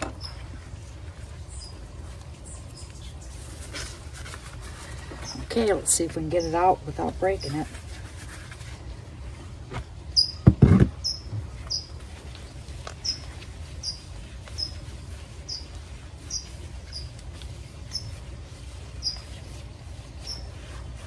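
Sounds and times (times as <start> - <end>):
bird chirping: 1.4 - 1.8, 10.1 - 12.0, 12.9 - 14.8, 15.4 - 17.2, 17.9 - 18.2, 19.0 - 19.3, 20.2 - 20.5.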